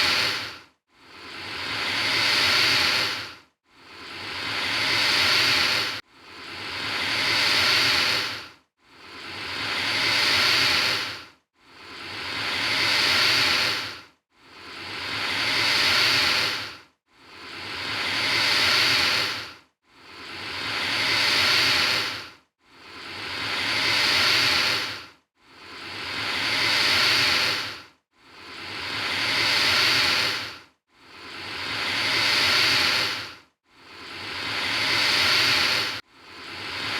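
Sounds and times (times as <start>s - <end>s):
alligator hissing: 0.0s - 0.5s, 1.2s - 3.3s, 4.0s - 6.0s, 6.6s - 8.4s, 9.1s - 11.2s, 11.8s - 14.0s, 14.7s - 16.7s, 17.4s - 19.5s, 20.1s - 22.2s, 23.0s - 25.0s, 25.7s - 27.8s, 28.4s - 30.6s, 31.3s - 33.3s, 33.9s - 36.9s.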